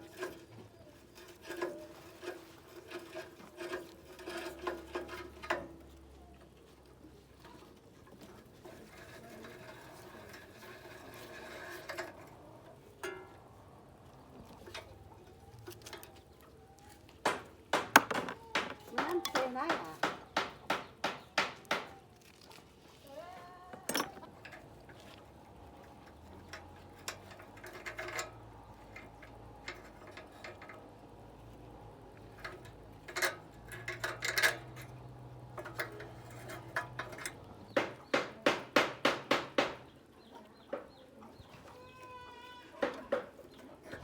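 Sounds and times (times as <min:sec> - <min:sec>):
sharp knocks and clicks: 0:17.2 - 0:22.0, 0:35.6 - 0:39.9.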